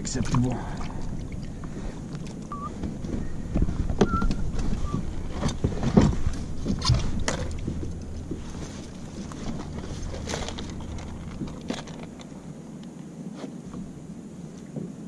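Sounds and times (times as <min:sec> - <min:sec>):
low steady rumble: 0:00.0 - 0:15.0
fishing gear clicking and knocking: 0:02.1 - 0:12.4.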